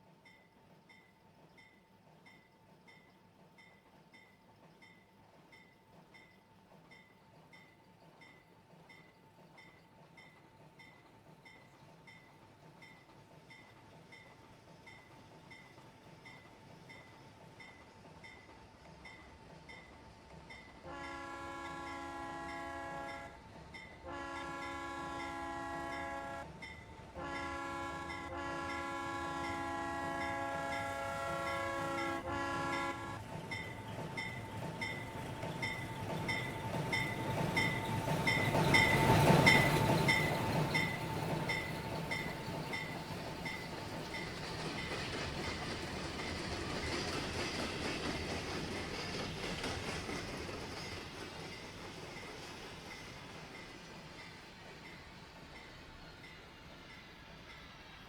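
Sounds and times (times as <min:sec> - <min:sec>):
steam train passing: 0:00.0 - 0:58.0
steam locomotive whistle: 0:20.8 - 0:23.4, 0:24.0 - 0:26.5, 0:27.2 - 0:33.3.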